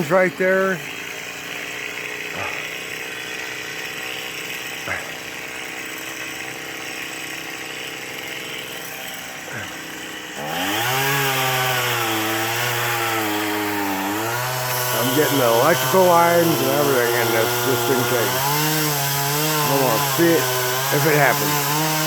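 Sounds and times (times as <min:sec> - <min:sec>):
chainsaw revving and cutting wood: 0:00.0 - 0:22.0.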